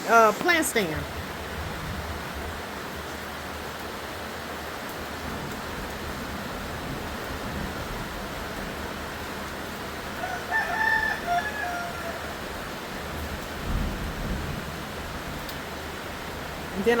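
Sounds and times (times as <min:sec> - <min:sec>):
rain hissing: 0:00.0 - 0:17.0
rooster crowing: 0:10.2 - 0:12.5.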